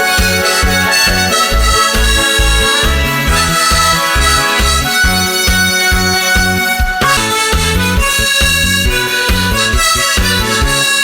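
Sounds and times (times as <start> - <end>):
accompaniment with bass beat: 0.0 - 11.0
harmonica melody: 0.0 - 11.0.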